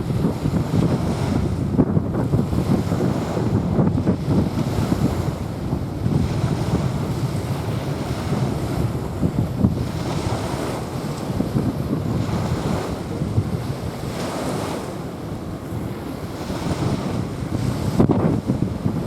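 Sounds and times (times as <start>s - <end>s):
small waves washing onto sand: 0.0s - 19.0s
wind buffeting microphone: 0.0s - 19.0s.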